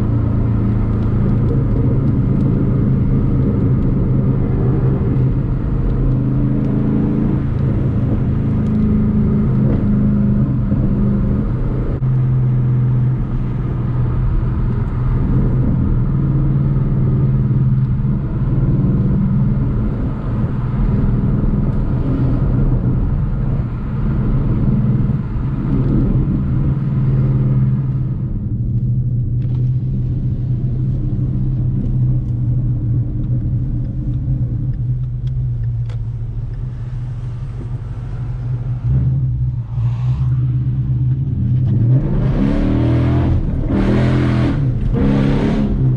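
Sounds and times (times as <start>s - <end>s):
car engine and exhaust cruising: 0.0s - 45.9s
tyre and road noise hiss: 39.5s - 41.1s.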